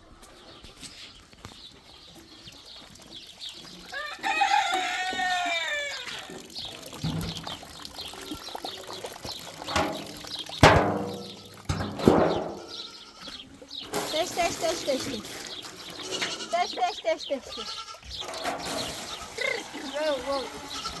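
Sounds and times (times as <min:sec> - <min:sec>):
rooster crowing: 0:03.9 - 0:06.3
sharp knock: 0:09.8 - 0:12.6.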